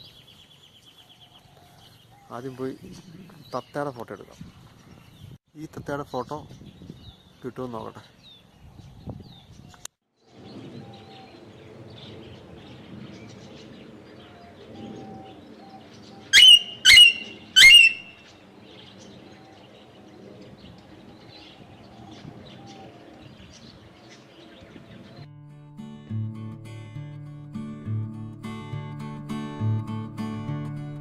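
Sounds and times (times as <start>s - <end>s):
birds chirping: 6.0s - 25.3s
parrot squawking: 16.3s - 18.3s.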